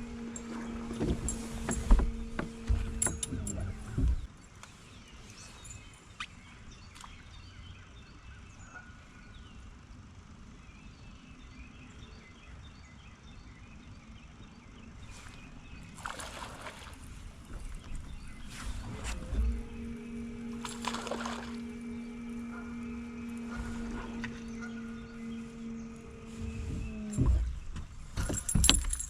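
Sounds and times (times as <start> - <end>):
rustle or splash: 15.0 - 17.8, 20.6 - 21.7.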